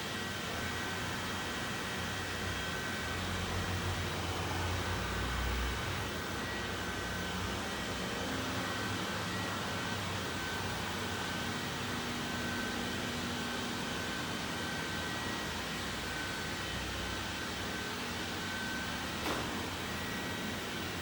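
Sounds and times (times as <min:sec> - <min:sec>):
brief click: 0:19.2 - 0:19.6.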